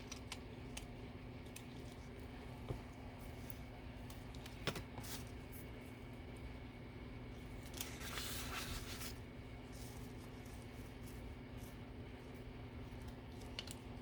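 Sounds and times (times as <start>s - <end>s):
low room hum: 0.0s - 14.0s
paper rustle: 7.6s - 11.8s.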